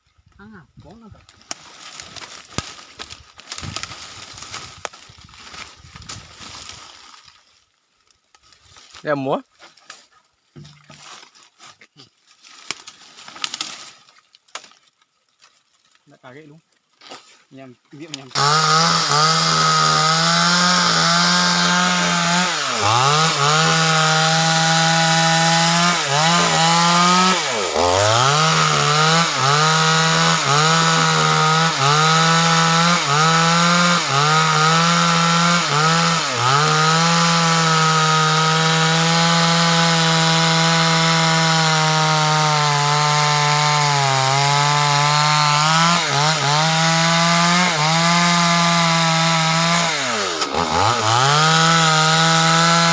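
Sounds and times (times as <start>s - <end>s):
chainsaw cutting wood: 1.3s - 7.3s, 18.0s - 52.9s.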